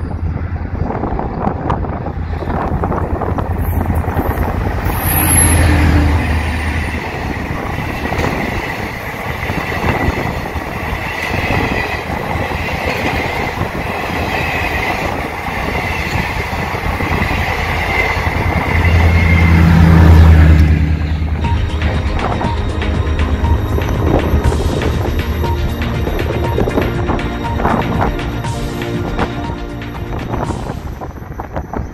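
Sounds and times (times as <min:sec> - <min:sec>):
train engine drone: 0:00.0 - 0:31.9
train wheels rumbling on rails: 0:00.0 - 0:31.9
high wheel squeal: 0:03.6 - 0:21.3.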